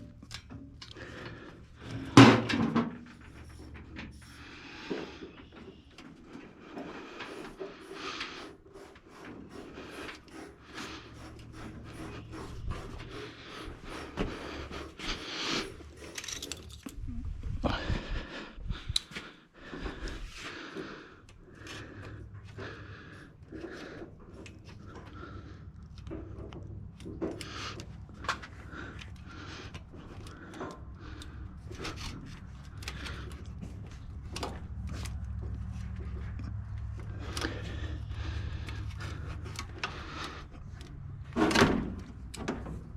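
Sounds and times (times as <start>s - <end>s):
metal tools clinking and scraping: 15.5s - 17.1s.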